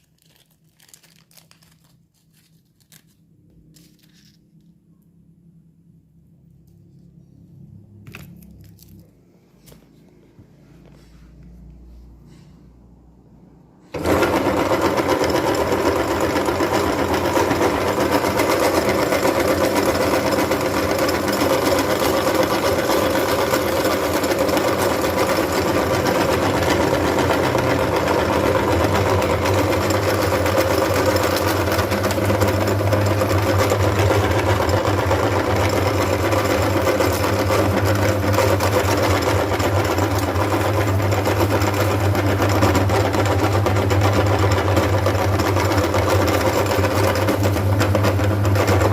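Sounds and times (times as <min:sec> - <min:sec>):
electric meat grinder humming: 0:13.9 - 0:48.9.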